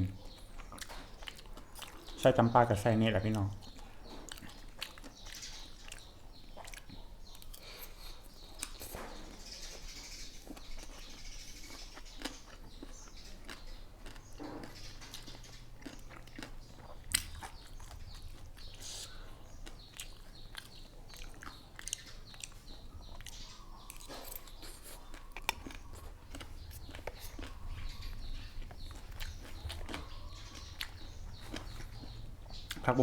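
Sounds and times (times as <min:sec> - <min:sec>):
person chewing crunchy food: 0:00.2 - 0:02.2, 0:03.3 - 0:33.0
mouth clicks: 0:18.6 - 0:33.0.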